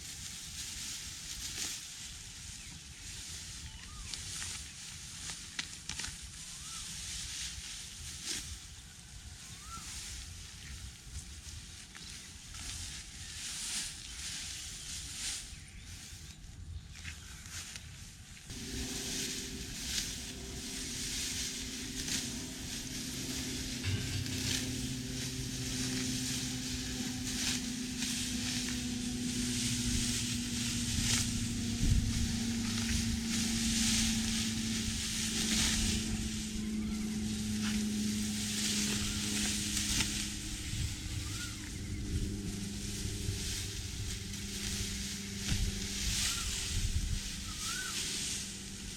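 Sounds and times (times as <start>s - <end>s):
crackling rustling hiss: 0.0s - 48.9s
engine running: 18.5s - 48.9s.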